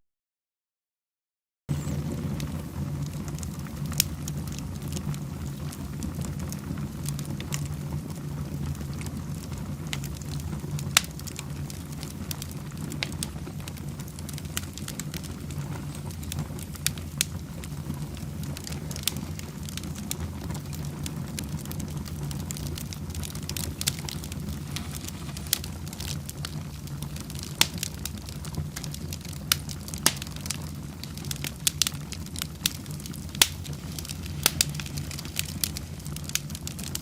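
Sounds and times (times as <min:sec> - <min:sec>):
fireplace fire crackling: 0:01.7 - 0:37.0
sharp pops: 0:33.4 - 0:35.8.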